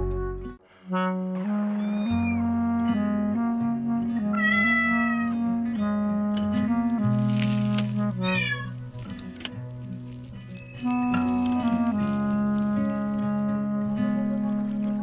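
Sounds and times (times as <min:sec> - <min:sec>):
instrumental music: 0:00.0 - 0:15.0
cat meowing: 0:04.3 - 0:05.4, 0:08.2 - 0:08.8.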